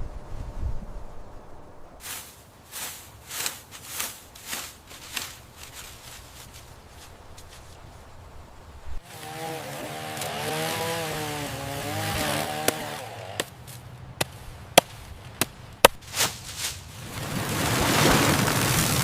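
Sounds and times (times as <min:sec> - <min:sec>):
steady hiss: 0:01.9 - 0:09.0
power tool motor running: 0:09.0 - 0:13.4.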